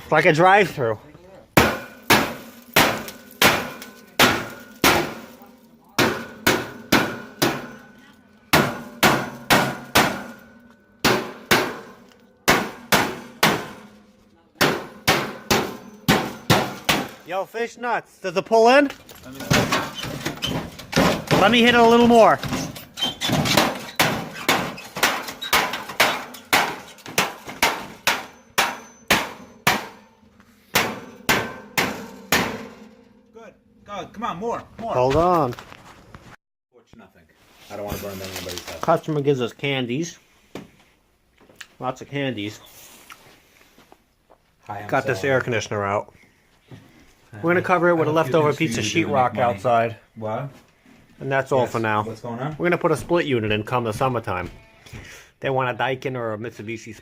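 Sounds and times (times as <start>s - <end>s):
hammer striking metal: 1.6s - 5.4s, 6.0s - 17.3s, 23.5s - 33.6s.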